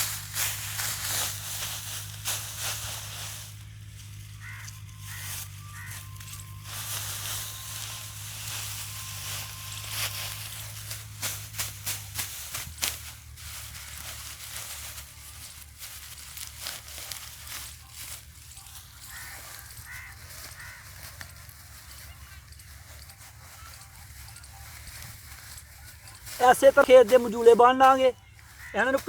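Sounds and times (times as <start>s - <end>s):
dry straw crackling and rustling: 0.0s - 29.0s.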